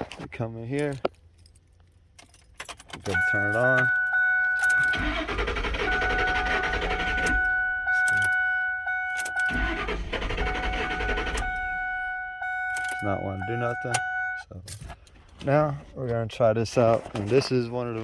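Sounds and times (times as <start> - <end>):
steady electronic warning tone: 3.2 - 14.4
starter motor cranking engine: 4.7 - 8.3, 9.2 - 11.9.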